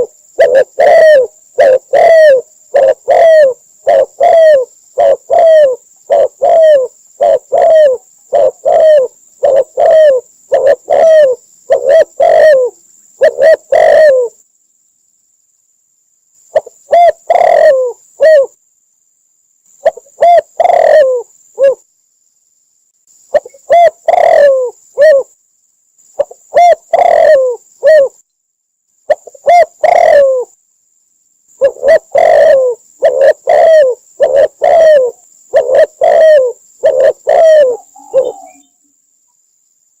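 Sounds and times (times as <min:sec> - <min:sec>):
dove cooing: 0:00.0 - 0:14.4, 0:16.5 - 0:18.6, 0:19.8 - 0:21.8, 0:23.3 - 0:25.3, 0:26.2 - 0:28.2, 0:29.1 - 0:30.6, 0:31.6 - 0:38.8.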